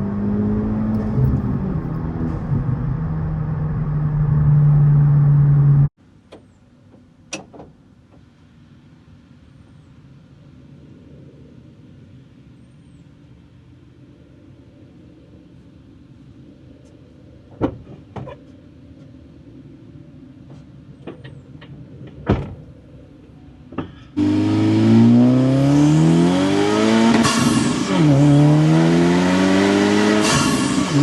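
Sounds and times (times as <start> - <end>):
turbocharged car engine and exhaust: 0.0 - 5.9, 23.7 - 31.0.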